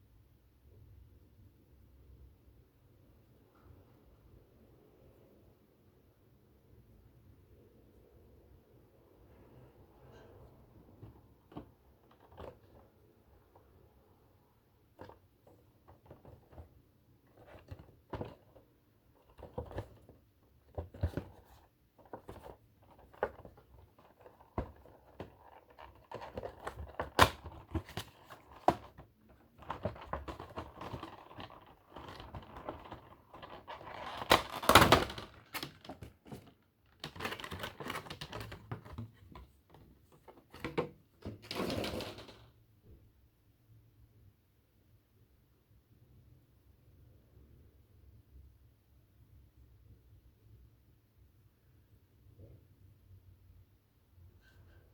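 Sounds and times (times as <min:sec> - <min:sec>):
cardboard and plastic rustling: 0:11.0 - 0:13.0, 0:14.8 - 0:42.5
packaging clicks and knocks: 0:20.7 - 0:39.4.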